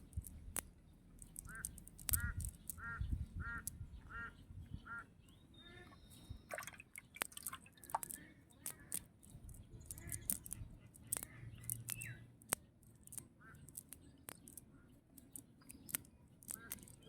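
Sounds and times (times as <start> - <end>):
water drips and splashes: 0.0 - 3.8, 6.2 - 17.0
duck quacking: 1.5 - 5.1.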